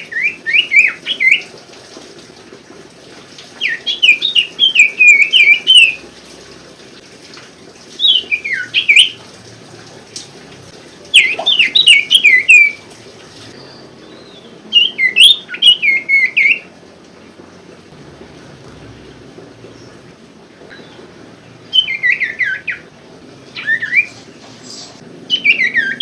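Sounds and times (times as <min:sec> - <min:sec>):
bird chirping: 0:11.1 - 0:12.8, 0:13.5 - 0:16.7, 0:21.7 - 0:22.8, 0:23.6 - 0:26.0.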